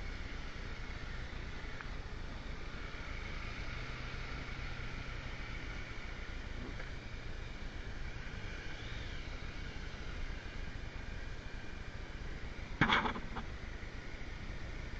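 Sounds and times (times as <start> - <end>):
constant rushing noise: 0.0 - 14.9
motorcycle engine running: 8.2 - 13.8.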